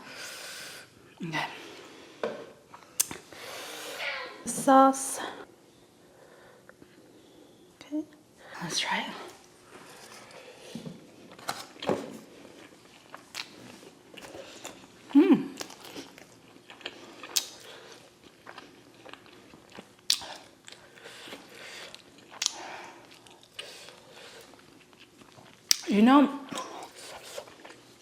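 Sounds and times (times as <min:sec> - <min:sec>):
chewing with crunches: 0:11.3 - 0:25.9, 0:26.5 - 0:28.0
wet mouth clicks: 0:20.1 - 0:20.4.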